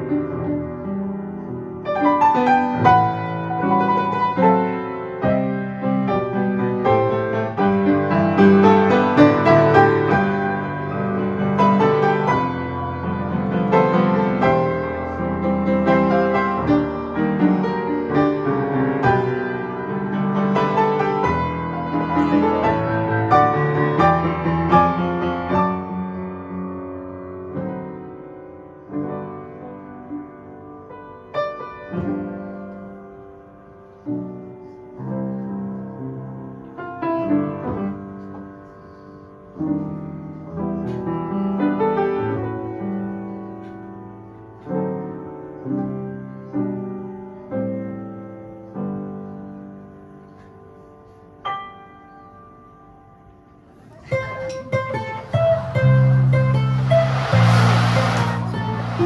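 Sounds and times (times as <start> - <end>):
piano music: 0.0 - 34.6, 51.5 - 59.0.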